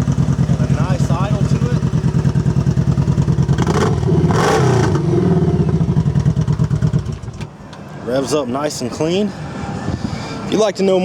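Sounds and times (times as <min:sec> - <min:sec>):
motorcycle engine idling and revving: 0:00.0 - 0:07.6.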